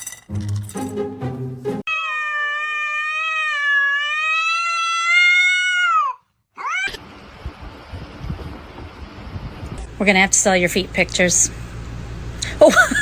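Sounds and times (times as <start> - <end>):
cat meowing: 1.9 - 7.0
cat yowling: 1.9 - 7.0.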